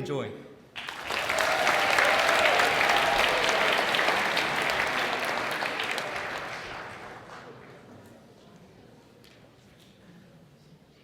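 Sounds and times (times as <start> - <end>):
audience applause: 0.8 - 7.9.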